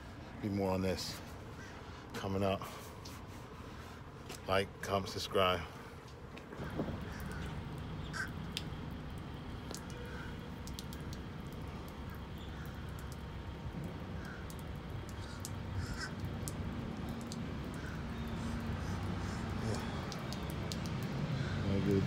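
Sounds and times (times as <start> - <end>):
birds calling: 1.0 - 2.1, 6.4 - 22.0.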